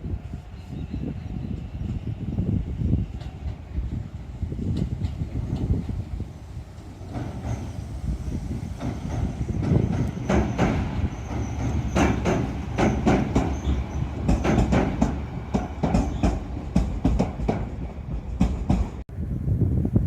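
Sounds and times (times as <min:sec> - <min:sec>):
train rolling rumble: 0:00.0 - 0:20.0
train wheels clacking over rail joints: 0:07.0 - 0:07.9, 0:08.6 - 0:19.0.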